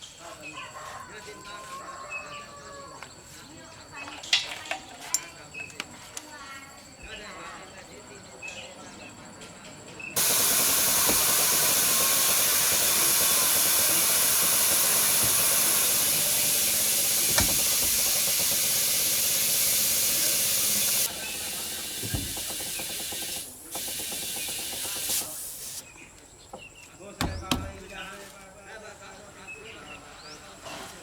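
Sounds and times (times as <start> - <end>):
loud spraying hiss: 10.2 - 25.9.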